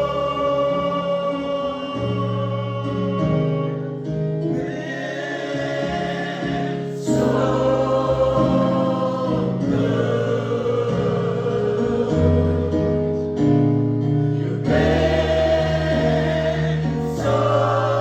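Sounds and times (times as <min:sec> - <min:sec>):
gospel choir singing: 0:00.0 - 0:18.0.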